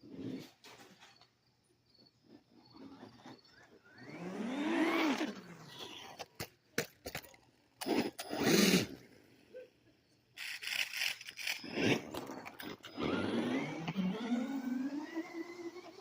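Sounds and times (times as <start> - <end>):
tire scraping noise: 2.4 - 9.1
electric motor whine: 2.8 - 6.2, 10.9 - 16.0.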